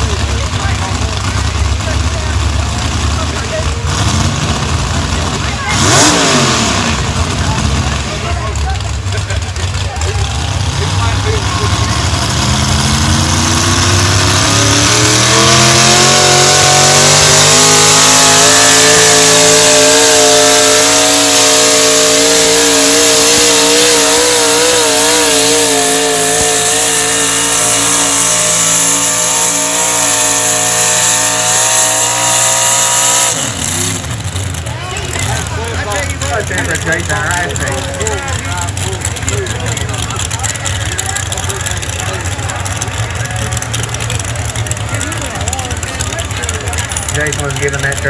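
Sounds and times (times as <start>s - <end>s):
truck engine at full revs: 0.0s - 48.0s.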